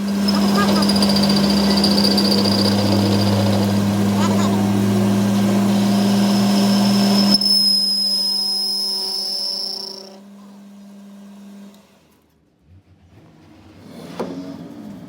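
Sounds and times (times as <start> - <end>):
high motor whine: 0.0 - 10.2
electric motor humming: 0.0 - 11.8.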